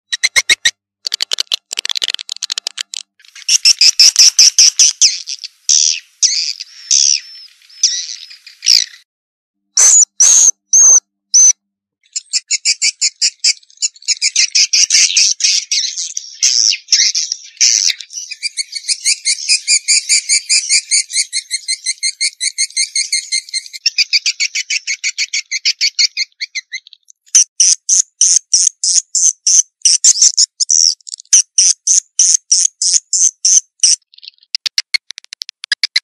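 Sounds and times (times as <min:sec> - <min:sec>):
swiftlets twittering chirps: 0:03.2 - 0:09.0, 0:09.8 - 0:36.0.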